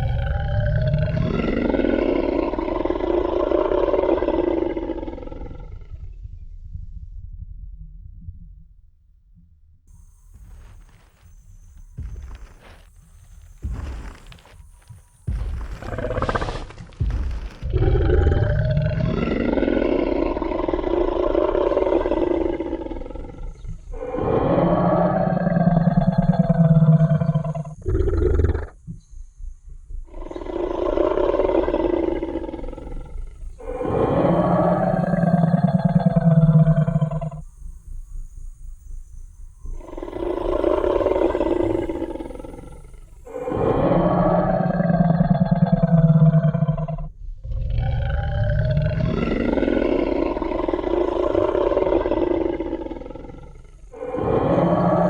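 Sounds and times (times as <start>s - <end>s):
deep rasping dinosaur roar: 0.0s - 6.2s, 17.6s - 28.8s, 30.1s - 37.4s, 39.8s - 55.0s
low rumble: 0.0s - 55.0s.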